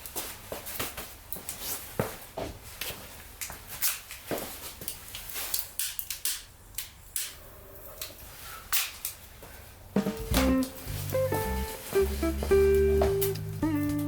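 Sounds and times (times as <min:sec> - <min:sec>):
wood fire crackling and popping: 0:04.8 - 0:07.4.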